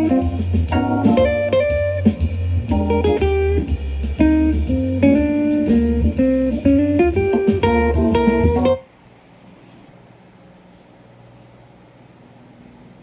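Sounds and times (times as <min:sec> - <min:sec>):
blues guitar music with bass: 0:00.0 - 0:08.8.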